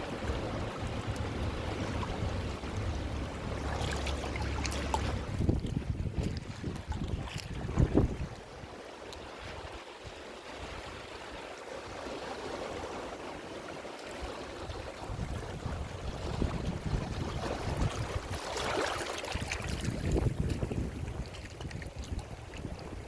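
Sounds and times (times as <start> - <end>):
ocean surf washing in: 0.0 - 6.2
wave breaking: 0.0 - 8.7, 10.4 - 21.3.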